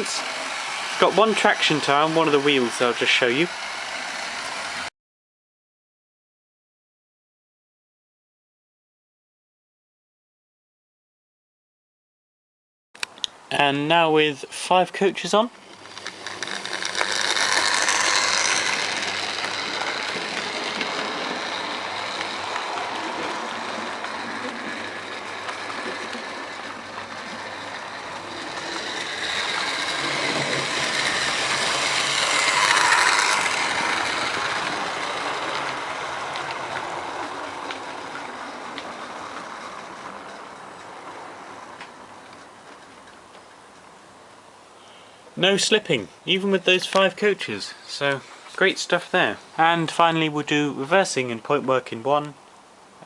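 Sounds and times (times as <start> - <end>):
model train motor whirring: 0.0 - 4.9, 15.6 - 42.9
wheels clattering over rails: 0.0 - 4.9, 15.6 - 43.6.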